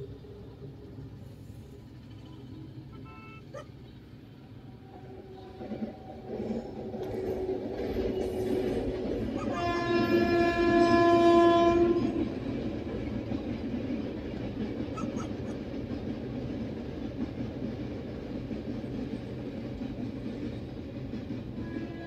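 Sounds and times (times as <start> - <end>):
train rumbling over bridge: 0.0 - 22.0
train horn blast: 2.9 - 3.6, 4.8 - 12.4, 21.5 - 22.0.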